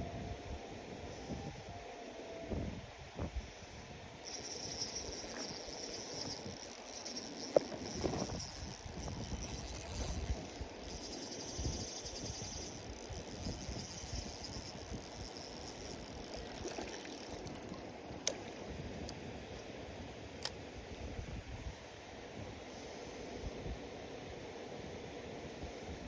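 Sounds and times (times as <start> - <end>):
wind rumbling on microphone: 2.4 - 22.7
pulsing insect trill: 4.2 - 17.9.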